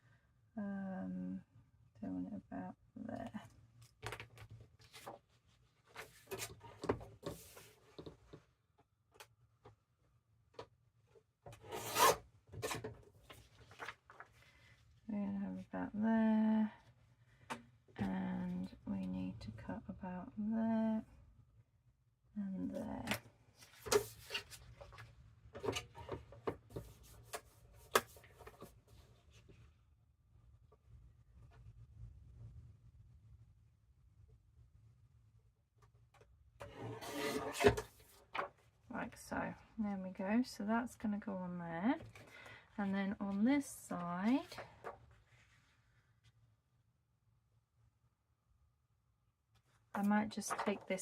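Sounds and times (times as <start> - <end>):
paper rustling: 3.9 - 8.1, 12.6 - 14.8, 23.6 - 25.8, 50.4 - 50.9.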